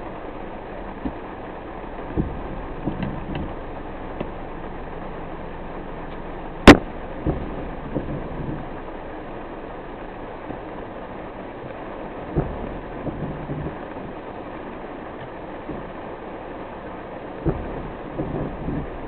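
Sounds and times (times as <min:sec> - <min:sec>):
rain: 0:00.0 - 0:19.0
road noise: 0:00.0 - 0:19.0
loud sharp knock: 0:06.7 - 0:07.4.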